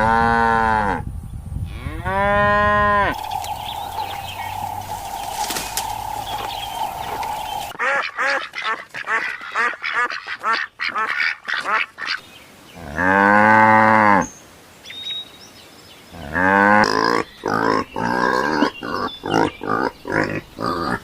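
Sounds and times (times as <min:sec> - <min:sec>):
long low animal call: 0:00.0 - 0:08.4
ducks quacking: 0:06.4 - 0:12.2.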